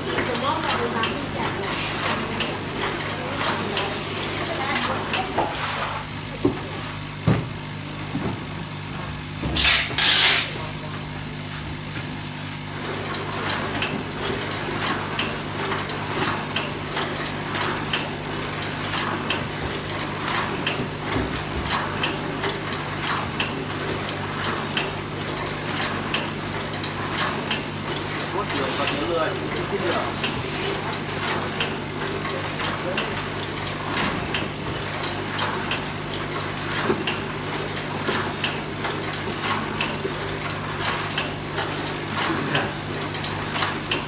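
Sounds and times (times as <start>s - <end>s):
wrapping machine humming: 0.0s - 44.0s
machine clacking: 12.5s - 44.0s.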